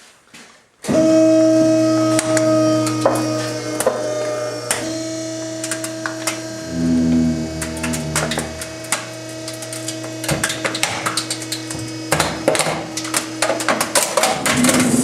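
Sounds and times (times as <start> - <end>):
trash compactor motor humming: 0.9 - 15.0
sharp clicks and cracks: 4.7 - 15.0.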